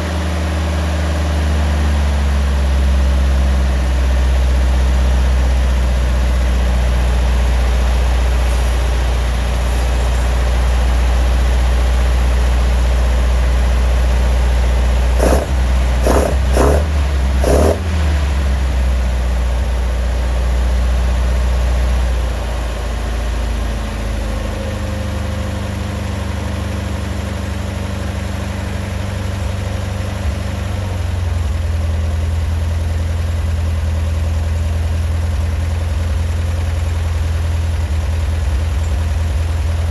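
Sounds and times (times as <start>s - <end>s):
car engine idling: 0.0s - 24.3s
engine throttle blips: 2.4s - 22.1s.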